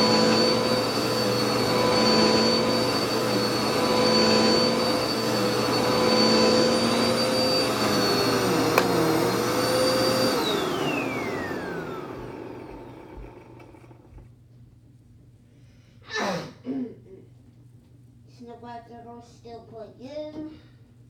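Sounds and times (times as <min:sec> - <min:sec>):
vacuum cleaner motor whine: 0:00.0 - 0:14.3.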